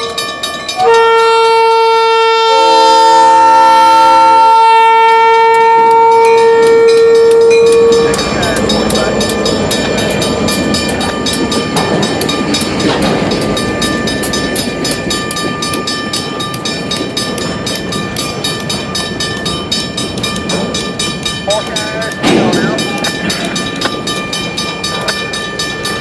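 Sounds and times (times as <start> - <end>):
freight train rumbling: 0.0 - 26.0
train wheels clicking on rail joints: 5.2 - 26.0.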